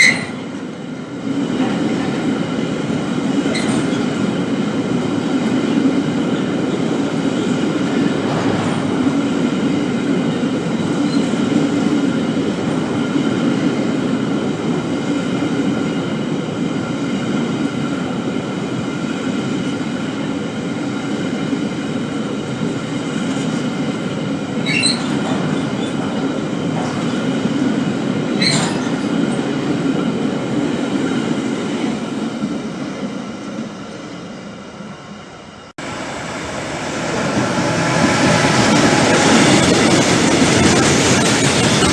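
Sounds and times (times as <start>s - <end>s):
sharp wheel squeals: 0.0s - 0.5s, 3.5s - 4.2s, 24.6s - 26.0s, 28.4s - 29.1s, 37.0s - 41.9s
freight train rolling on rails: 0.0s - 41.9s.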